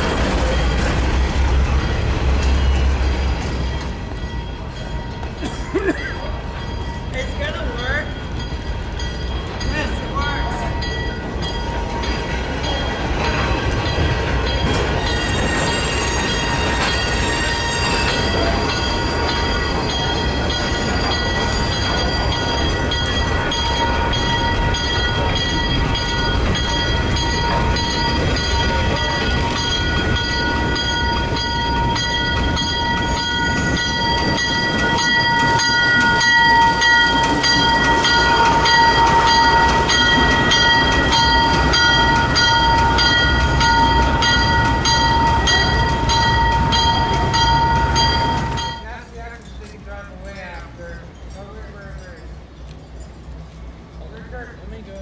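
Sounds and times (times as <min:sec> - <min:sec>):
high-pitched wheel squeal: 0:15.0 - 0:22.3.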